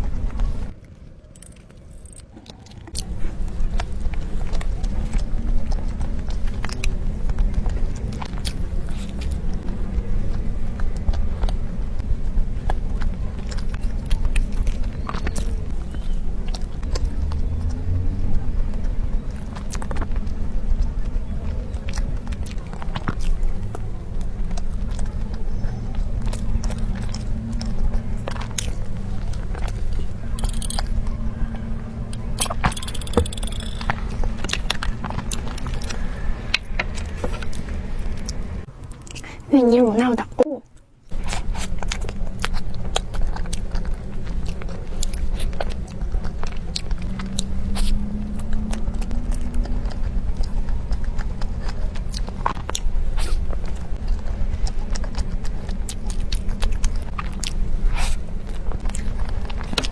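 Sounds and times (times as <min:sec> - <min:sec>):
close chewing of soft cake: 0:00.0 - 0:59.9
steady low hum: 0:00.0 - 0:59.9
steady low rumble: 0:00.0 - 0:59.9
wet mouth clicks and smacks: 0:26.3 - 0:31.2
crackly rustles: 0:40.2 - 0:59.9.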